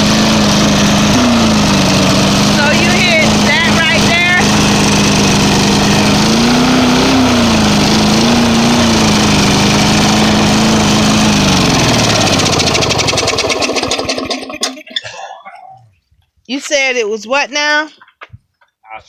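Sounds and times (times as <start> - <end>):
lawnmower engine running: 0.0 - 14.9.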